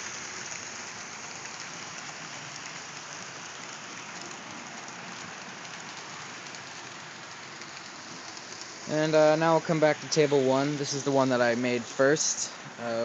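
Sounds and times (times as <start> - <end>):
model train wheels hissing on rail: 0.0 - 13.0.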